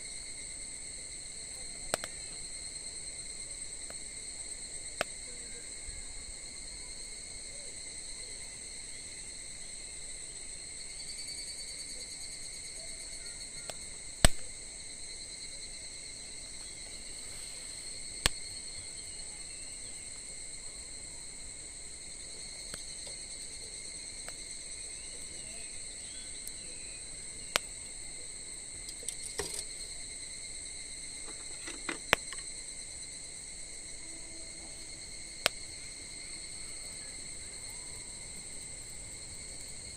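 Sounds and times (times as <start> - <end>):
insects trilling: 0.0 - 39.9
campfire pops and crackles: 1.8 - 2.6, 4.9 - 5.3, 13.7 - 14.7, 16.4 - 19.1, 21.4 - 25.4, 27.2 - 30.2, 30.9 - 32.7, 34.9 - 39.9.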